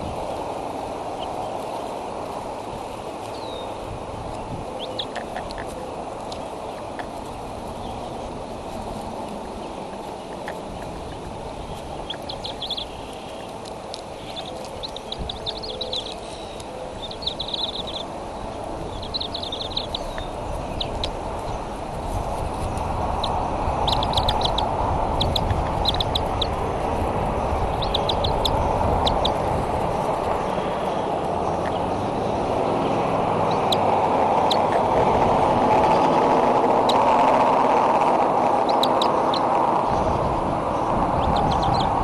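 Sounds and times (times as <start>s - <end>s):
rushing background noise: 0.0s - 42.0s
high-pitched bird chirps: 12.0s - 13.5s, 14.2s - 18.1s, 18.9s - 21.1s, 23.2s - 26.6s, 27.6s - 29.4s.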